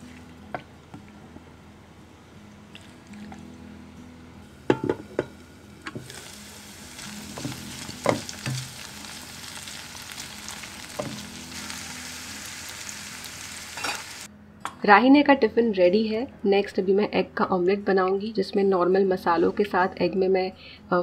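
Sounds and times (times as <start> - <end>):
potatoes sizzling in oil: 5.4 - 14.3
spatula stirring and knocking pan: 7.3 - 8.8.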